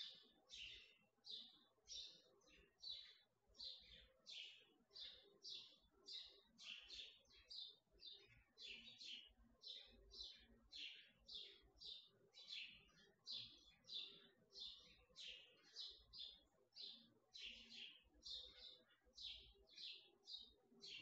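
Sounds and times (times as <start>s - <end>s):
small bird chirping: 0.0s - 21.0s.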